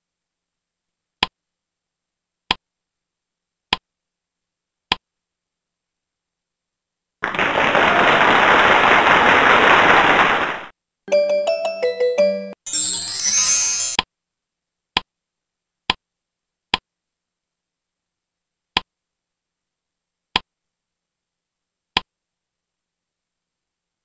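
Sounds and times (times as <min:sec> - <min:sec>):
electronic jingle: 0:11.1 - 0:14.0.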